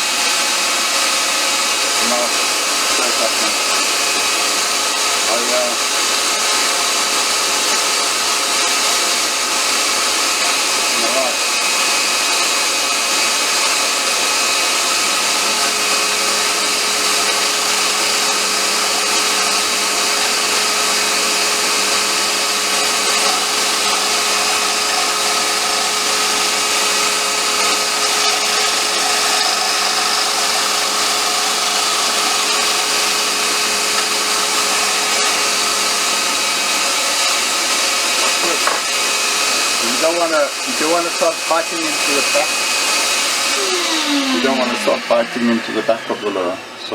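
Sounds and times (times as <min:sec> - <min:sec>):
turning tool cutting wood: 0:00.0 - 0:46.9
wood lathe running: 0:00.0 - 0:46.9.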